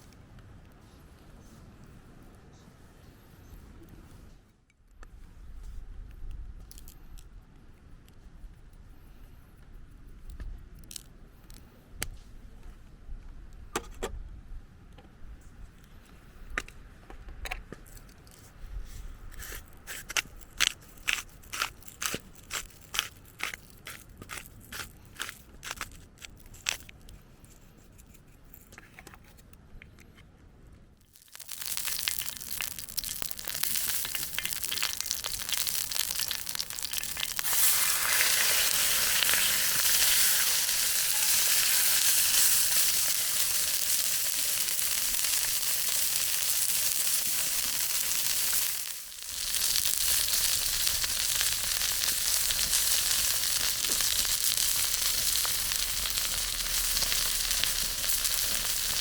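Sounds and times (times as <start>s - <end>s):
faint crackles: 31.0s - 59.0s
chicken sizzling in a pan: 31.1s - 59.0s.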